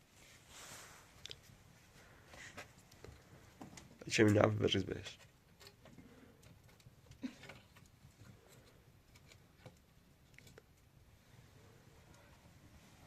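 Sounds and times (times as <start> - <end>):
faint small clicks and taps: 5.1 - 10.9.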